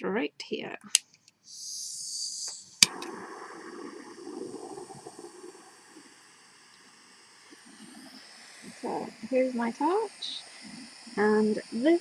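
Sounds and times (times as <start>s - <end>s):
gas hissing: 1.5s - 12.0s
torch flame rushing: 2.8s - 11.4s.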